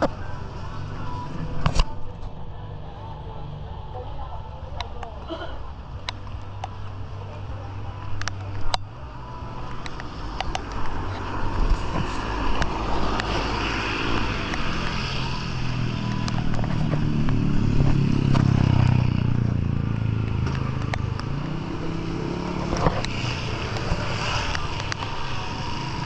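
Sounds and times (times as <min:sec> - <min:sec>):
vehicle engine passing by: 0:09.3 - 0:26.0.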